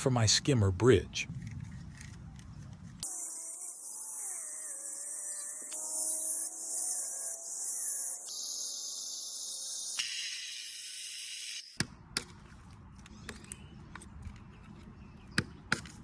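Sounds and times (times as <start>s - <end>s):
high steady buzz: 3.0s - 11.8s.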